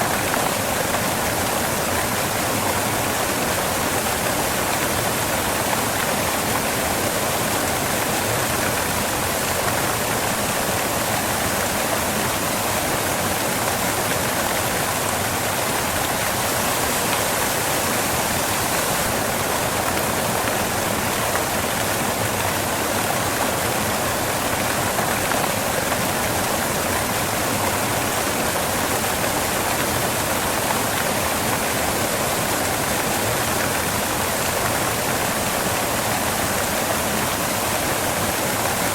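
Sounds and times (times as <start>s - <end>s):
waterfall rushing onto rocks: 0.0s - 38.9s.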